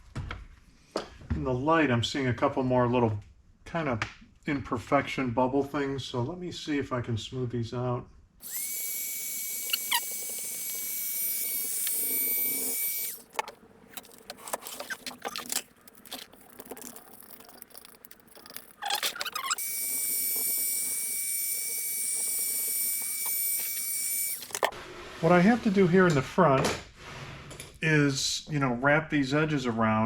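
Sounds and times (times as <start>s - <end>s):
heat gun whining: 8.4s - 24.8s
rubbing and scraping vinyl: 13.2s - 19.6s.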